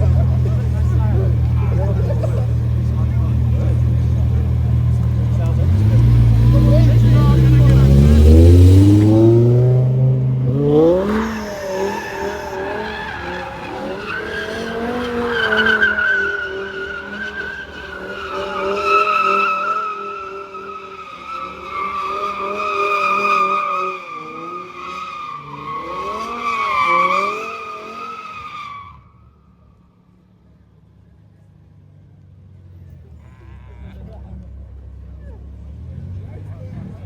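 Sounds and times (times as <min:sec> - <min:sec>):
engine revving high: 0:05.3 - 0:28.1
tyres squealing: 0:10.8 - 0:29.0.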